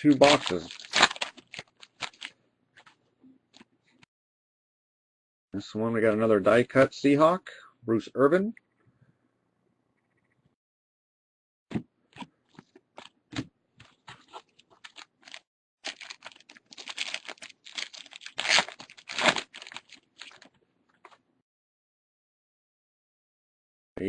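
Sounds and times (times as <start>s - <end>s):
card wrappers crinkling: 0.0s - 3.0s, 13.8s - 21.2s.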